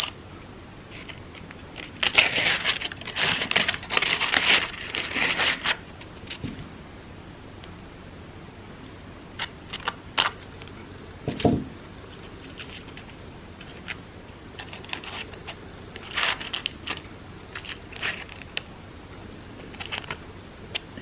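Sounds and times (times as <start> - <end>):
crepe paper crinkling: 0.9 - 6.5, 12.1 - 18.6, 19.6 - 20.2.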